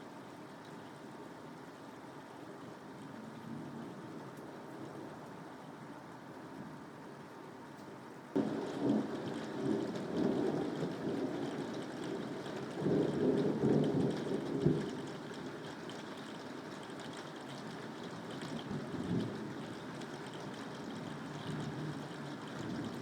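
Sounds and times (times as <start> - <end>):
steady rain: 0.0 - 23.0
thunder rumbling: 8.4 - 15.1.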